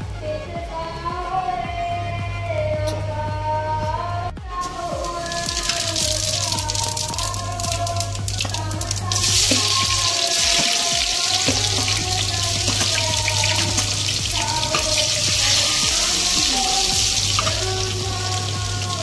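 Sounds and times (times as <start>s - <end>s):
music track: 0.0s - 19.0s
garlic sizzling in hot oil: 4.6s - 19.0s.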